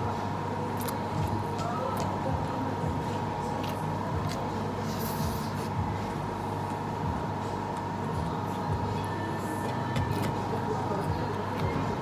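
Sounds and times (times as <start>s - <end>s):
steady low hum: 0.0s - 12.0s
person chewing: 3.5s - 6.8s.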